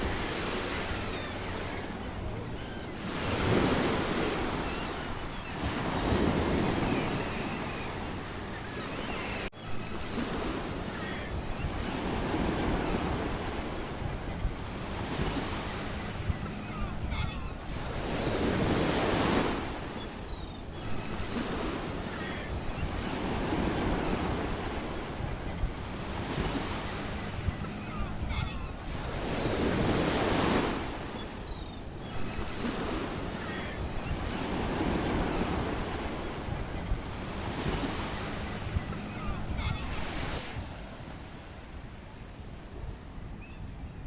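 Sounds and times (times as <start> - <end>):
sea waves breaking on rocks: 0.0 - 9.5
wind buffeting microphone: 0.0 - 9.5.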